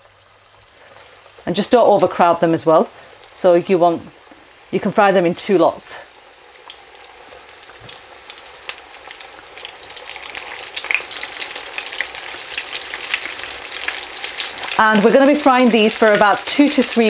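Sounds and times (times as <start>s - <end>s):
fish deep-frying in sizzling oil: 0.0s - 17.0s.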